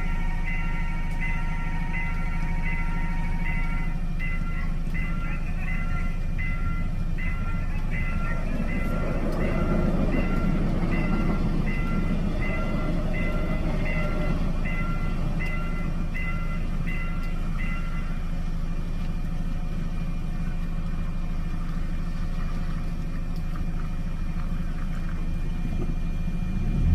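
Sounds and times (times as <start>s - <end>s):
passing train rumble: 0.0s - 26.9s
level crossing bell chiming: 0.4s - 18.1s.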